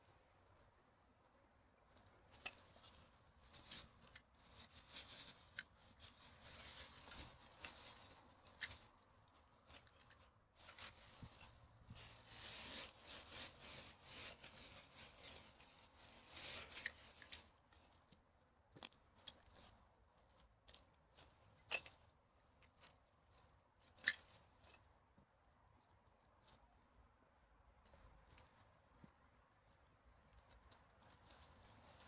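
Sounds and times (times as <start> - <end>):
dry litter rustling and crackling: 1.9 - 25.0, 30.3 - 32.0.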